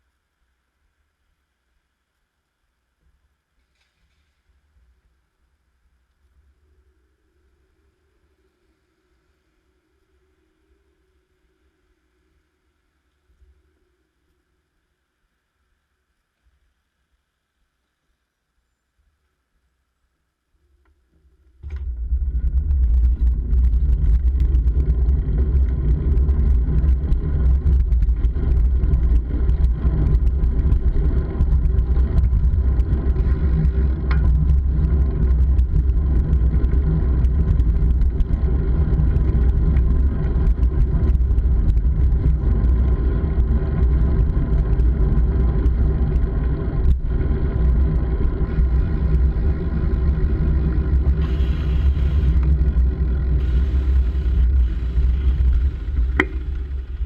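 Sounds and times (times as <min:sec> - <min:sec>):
wind and road rumble: 0:21.2 - 0:57.0.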